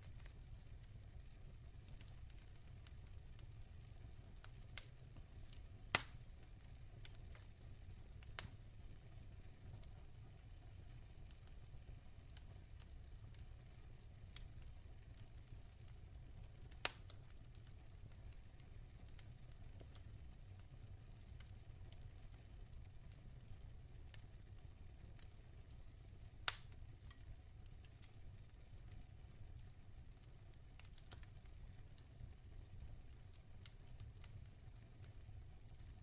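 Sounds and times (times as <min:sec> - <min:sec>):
log fire crackling: 0:00.0 - 0:36.0
sharp fire pops: 0:05.9 - 0:06.3, 0:16.7 - 0:17.2, 0:26.4 - 0:27.3.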